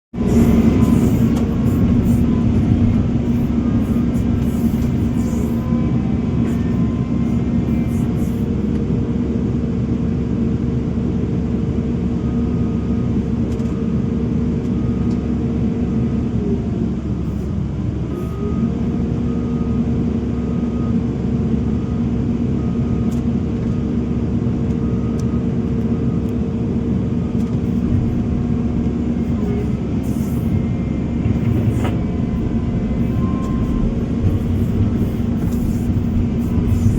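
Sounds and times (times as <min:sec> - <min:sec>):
heavy machinery diesel engine: 0:00.1 - 0:36.9.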